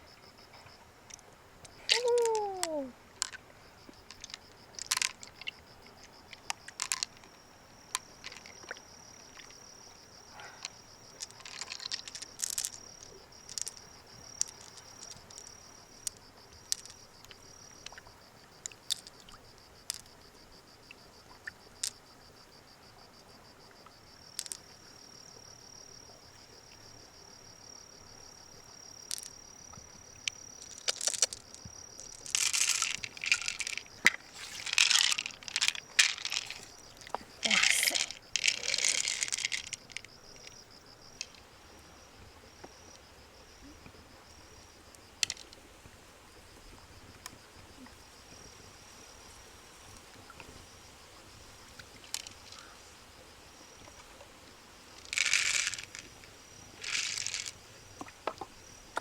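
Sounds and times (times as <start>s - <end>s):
cricket-like insect trilling: 0.0s - 45.7s, 46.3s - 54.1s, 54.8s - 59.0s
rustling crunching noise: 30.6s - 40.1s.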